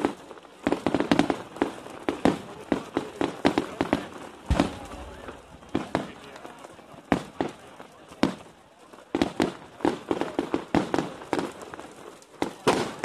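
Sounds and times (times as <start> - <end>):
fireworks bangs and crackles: 0.0 - 13.0
deep firework boom: 4.5 - 6.2.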